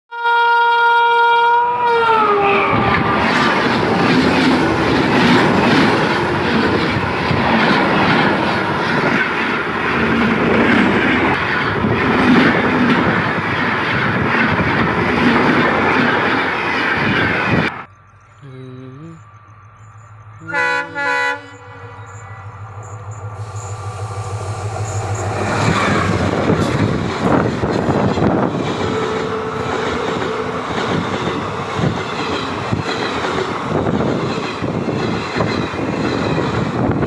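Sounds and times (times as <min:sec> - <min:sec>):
train horn: 0:00.1 - 0:04.2, 0:20.4 - 0:25.0, 0:28.4 - 0:31.1
train coaches clattering over rails: 0:02.8 - 0:17.7, 0:21.5 - 0:37.0.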